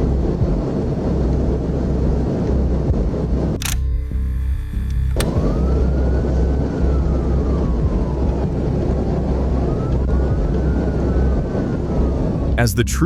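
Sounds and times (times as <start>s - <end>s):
engine and road noise: 0.0s - 13.0s
sharp click: 3.6s - 3.9s, 4.8s - 5.4s
police siren wailing: 5.1s - 12.6s.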